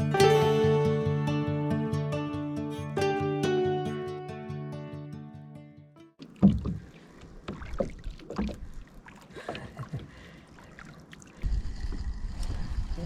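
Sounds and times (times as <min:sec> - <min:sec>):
acoustic guitar music: 0:00.0 - 0:06.9
paddle splashing in water: 0:06.2 - 0:13.0.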